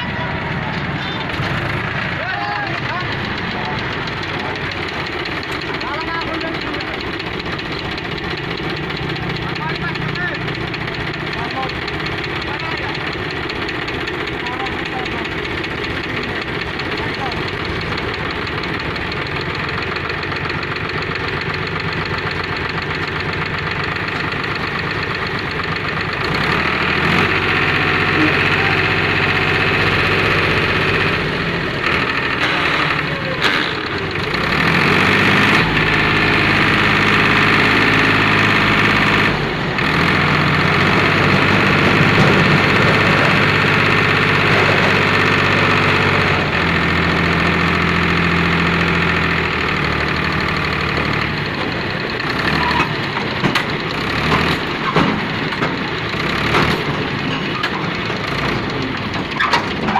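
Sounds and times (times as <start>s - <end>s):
tractor diesel engine running: 0.0s - 59.9s
scattered knocks: 2.7s - 25.9s, 40.1s - 45.8s, 52.8s - 59.9s.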